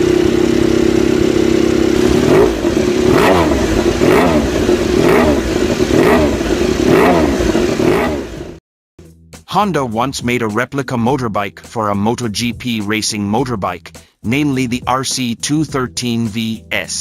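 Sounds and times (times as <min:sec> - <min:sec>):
motorcycle engine idling and revving: 0:00.0 - 0:08.6.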